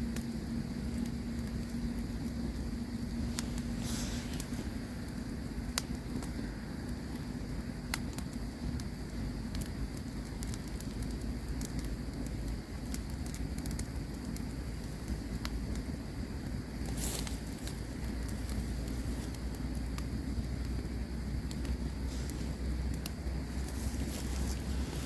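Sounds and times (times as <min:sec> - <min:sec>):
campfire crackling and popping: 0:00.0 - 0:25.0
low rumble of burning: 0:00.0 - 0:25.0.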